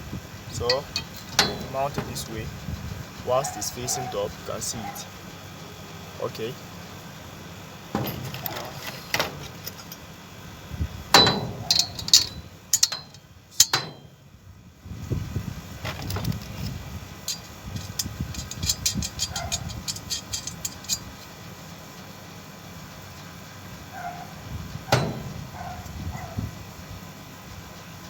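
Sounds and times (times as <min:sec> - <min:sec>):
metal parts knocking and clinking: 0:00.5 - 0:02.5, 0:07.9 - 0:10.1, 0:11.1 - 0:14.2, 0:15.8 - 0:21.4, 0:24.9 - 0:25.8
sharp metal clanks: 0:00.5 - 0:02.5, 0:07.9 - 0:10.1, 0:11.1 - 0:14.2, 0:17.2 - 0:21.3, 0:24.9 - 0:25.9.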